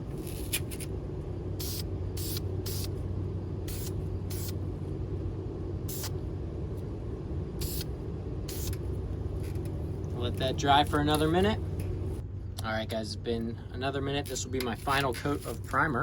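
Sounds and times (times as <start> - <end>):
steady low drone: 0.0 - 16.0.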